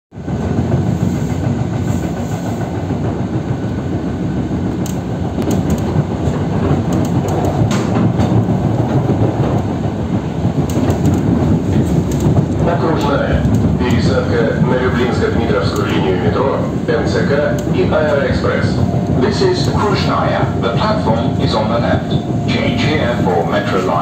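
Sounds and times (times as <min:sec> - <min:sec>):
train wheels rumbling on rails: 0:00.1 - 0:24.0
wheel clatter clicks: 0:04.7 - 0:14.2.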